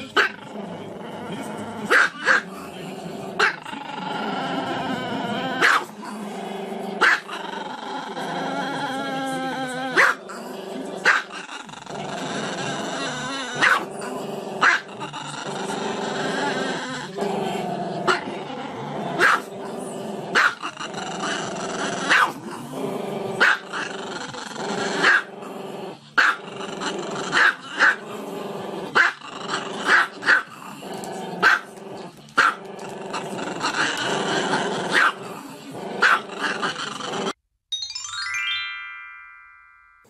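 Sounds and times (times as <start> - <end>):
dog growling: 0.0 - 37.4.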